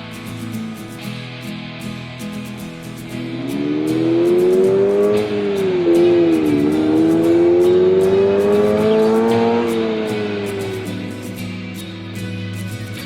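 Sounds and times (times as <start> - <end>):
guitar music: 0.0 - 13.0
car engine accelerating: 3.2 - 11.6.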